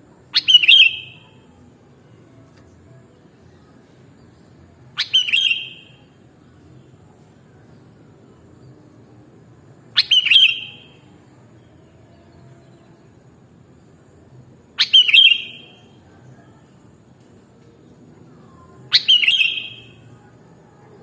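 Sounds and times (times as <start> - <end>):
faint background hiss: 0.0 - 21.0
bird chirp and whistle: 0.3 - 1.3, 5.0 - 6.0, 10.0 - 11.0, 14.8 - 15.9, 18.9 - 20.0.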